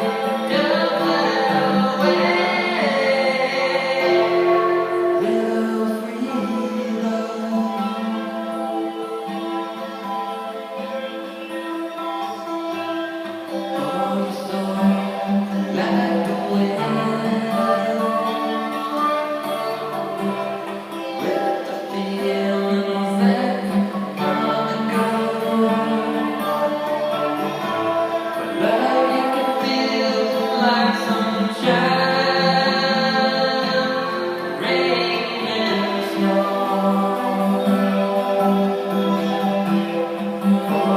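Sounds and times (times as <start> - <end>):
person singing sustained notes: 0.0 - 8.6
music with singing: 0.0 - 40.9.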